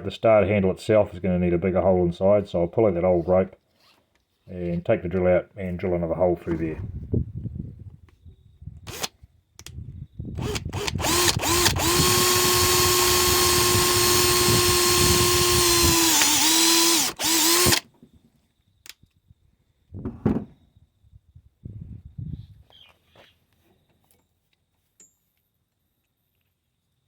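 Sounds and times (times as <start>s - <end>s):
power drill whine: 8.9s - 9.1s, 10.4s - 17.9s.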